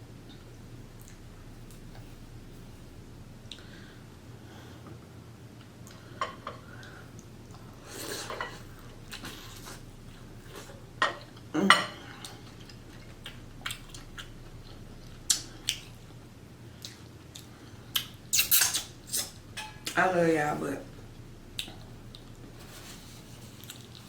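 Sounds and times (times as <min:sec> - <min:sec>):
clattering of dishes while eating: 0:11.0 - 0:12.0, 0:19.6 - 0:20.0.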